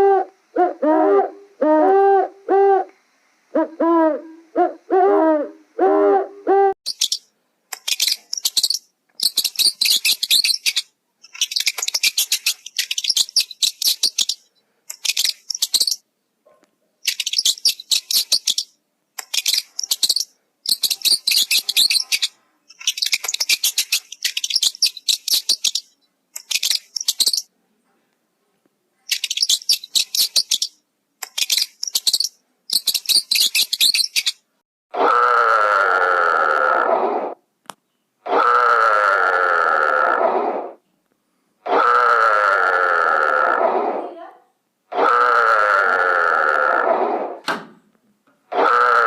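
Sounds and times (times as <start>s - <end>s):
small animal chattering calls: 6.9s - 14.4s, 17.1s - 27.5s, 29.1s - 34.4s.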